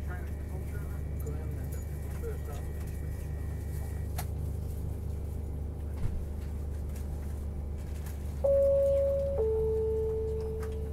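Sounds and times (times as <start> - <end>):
train carriage hum and rumble: 0.0 - 10.9
chime note: 8.5 - 10.9.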